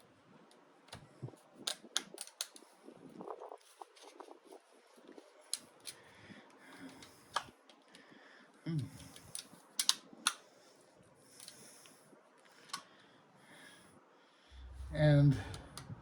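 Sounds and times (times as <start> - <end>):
metal parts clicking and knocking: 1.6 - 2.6, 9.0 - 10.4.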